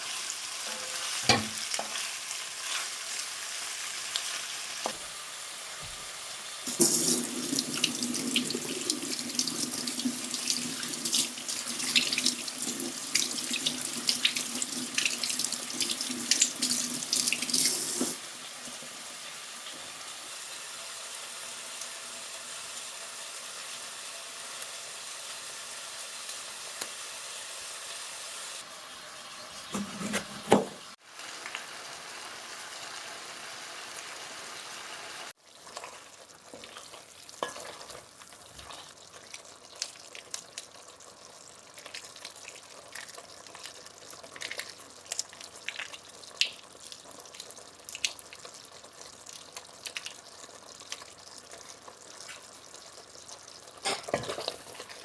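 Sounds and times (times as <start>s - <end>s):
kitchen tap running into sink: 6.7s - 18.8s.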